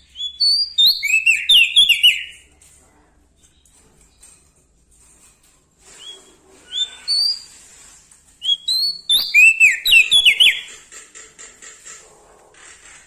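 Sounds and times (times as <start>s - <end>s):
songbird whistling: 0.1s - 2.3s, 6.0s - 7.5s, 8.4s - 10.7s.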